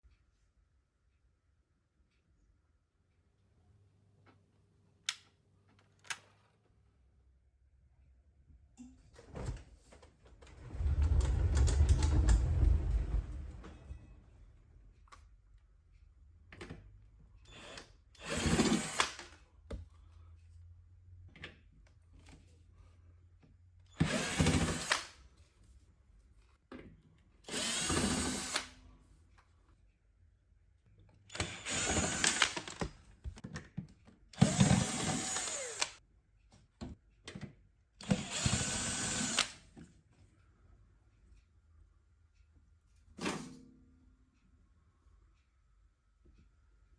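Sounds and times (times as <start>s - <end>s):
cordless drill driving screw: 17.5s - 19.4s, 24.0s - 25.1s, 27.5s - 28.8s, 31.3s - 32.9s, 34.4s - 36.0s, 38.0s - 39.6s.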